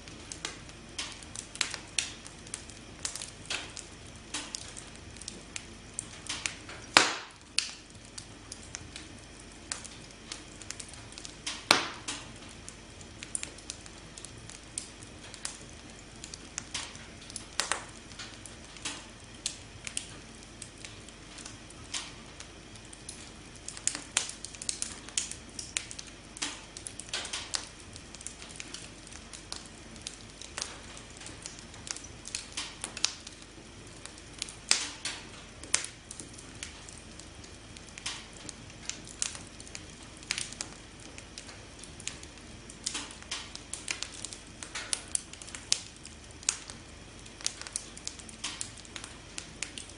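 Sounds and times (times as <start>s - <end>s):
campfire crackling and popping: 0.0s - 49.9s
soft steady hiss: 0.0s - 49.9s.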